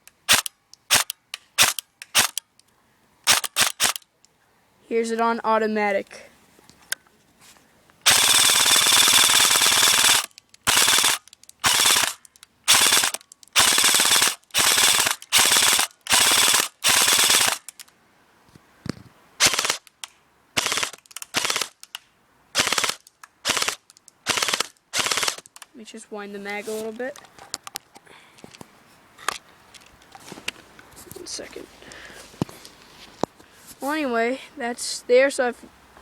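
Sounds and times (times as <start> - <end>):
airsoft gun automatic bursts: 0.3 - 2.4, 3.3 - 4.0, 8.0 - 17.8, 19.4 - 19.9, 20.6 - 21.9, 22.6 - 25.5.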